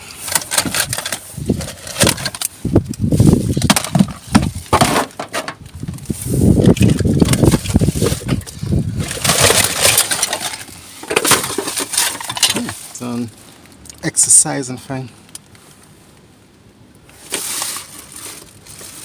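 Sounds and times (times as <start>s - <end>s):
items clattering in dumpster: 0.0s - 2.4s, 3.2s - 13.0s, 17.2s - 19.0s
rustling rubbish: 0.0s - 13.8s, 17.1s - 19.0s.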